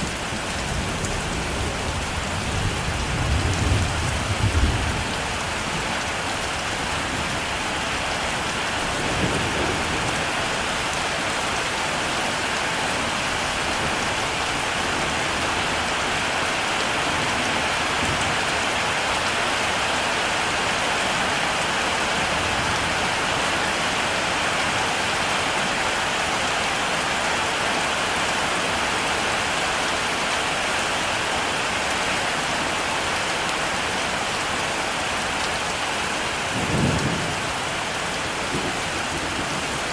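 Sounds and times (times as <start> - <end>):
heavy rain falling: 0.0 - 39.9
low rumble of thunder: 0.1 - 6.0, 8.8 - 10.3, 36.5 - 39.7.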